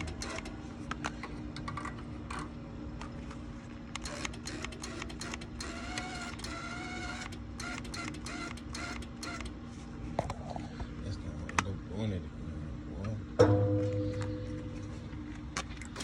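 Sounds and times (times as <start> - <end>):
car exhaust drone: 13.4 - 16.0.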